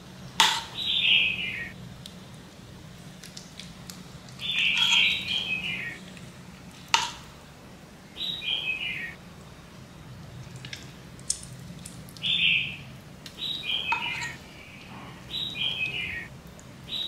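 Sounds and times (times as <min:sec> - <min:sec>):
bird calling: 0:00.0 - 0:01.8, 0:04.4 - 0:06.2, 0:08.1 - 0:09.2, 0:12.2 - 0:16.3.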